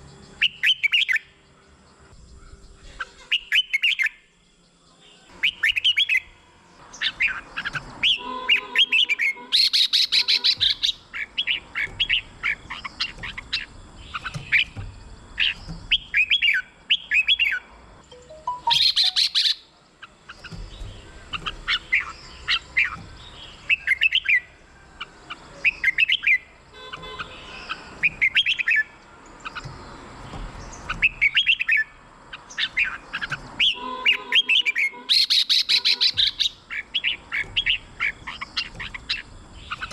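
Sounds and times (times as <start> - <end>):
harsh bird chattering: 7.0 - 17.6, 18.3 - 24.4, 30.9 - 39.9
bird singing whistled phrases: 15.5 - 17.6, 18.2 - 19.6, 33.6 - 39.9.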